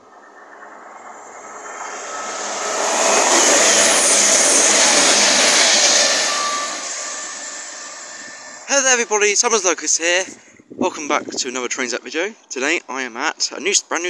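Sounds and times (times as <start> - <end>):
train passing at speed: 0.0 - 10.3.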